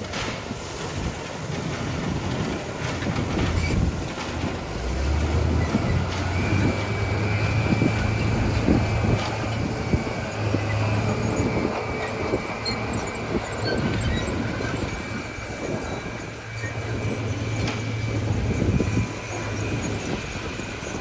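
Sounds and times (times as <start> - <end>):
diesel engine running under load: 0.0 - 21.0
steel tracks clanking and rattling: 0.0 - 21.0
thin whine: 5.4 - 21.0.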